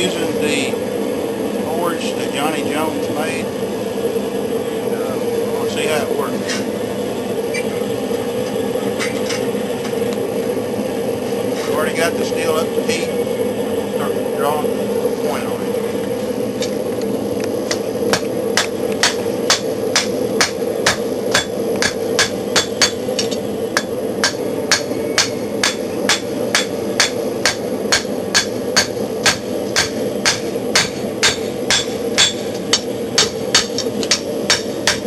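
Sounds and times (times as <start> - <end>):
forge air rushing: 0.0 - 35.0
hammer striking steel on anvil: 18.2 - 35.0.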